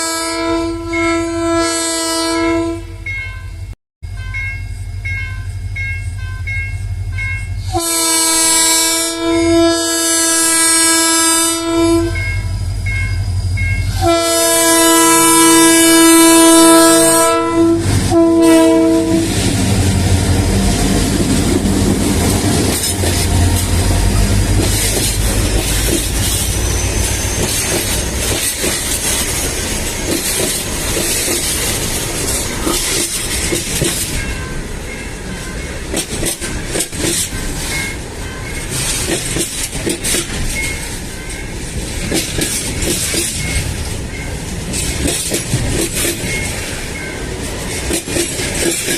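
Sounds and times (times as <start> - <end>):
locomotive horn blasts: 0.0 - 3.1, 7.6 - 12.5, 13.9 - 19.4
train wheels clattering on rail joints: 17.8 - 48.9
diesel engine rumble: 19.2 - 27.5.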